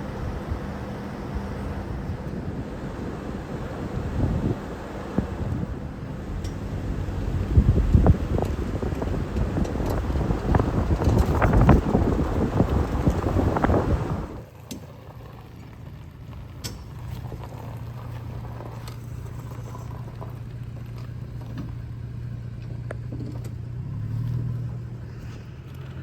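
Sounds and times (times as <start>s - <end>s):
wind noise: 0.0s - 14.4s
truck engine idling: 0.0s - 26.0s.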